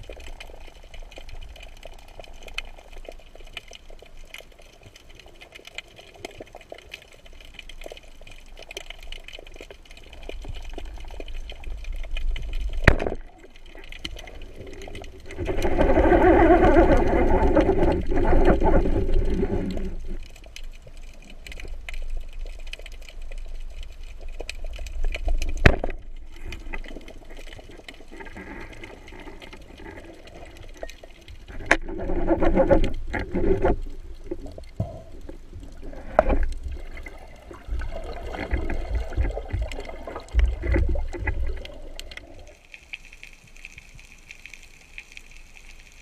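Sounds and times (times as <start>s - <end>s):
underwater clicks: 0.0s - 43.1s
water gurgling and bubbling: 10.1s - 20.3s, 25.4s - 42.6s.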